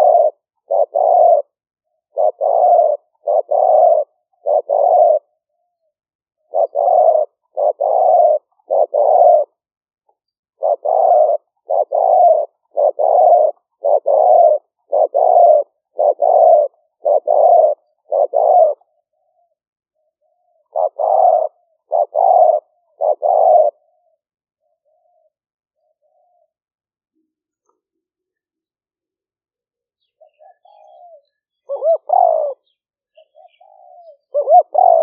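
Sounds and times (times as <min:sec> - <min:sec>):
dove cooing: 0:00.0 - 0:09.8, 0:10.4 - 0:26.8, 0:30.0 - 0:35.0
faint soft bird notes: 0:29.5 - 0:35.0.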